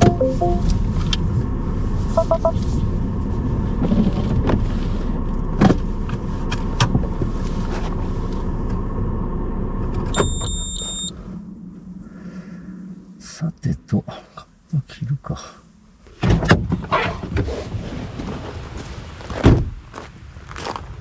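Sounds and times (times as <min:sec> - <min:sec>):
high beep: 0:00.0 - 0:00.7, 0:02.2 - 0:02.6
short electronic chimes: 0:00.0 - 0:00.7, 0:02.2 - 0:02.6
car engine and road rumble: 0:00.0 - 0:12.2.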